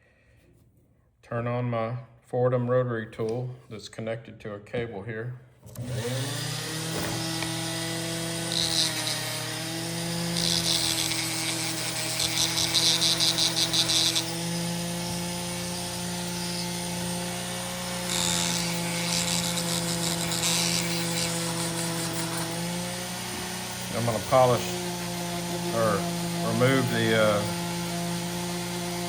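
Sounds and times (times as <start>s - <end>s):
rotary tool motor whining: 5.7s - 29.0s
metal brush scratching steel: 18.1s - 27.7s.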